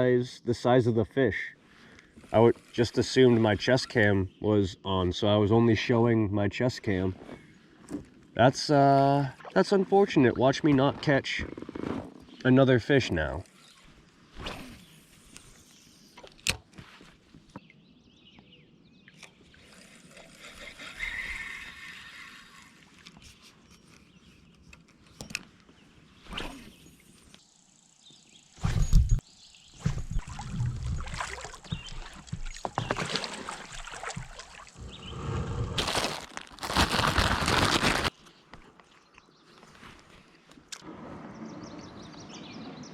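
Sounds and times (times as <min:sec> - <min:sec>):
clicks and knocks in a kayak: 0:30.0 - 0:34.6
rumbling rustling noise: 0:34.8 - 0:38.1.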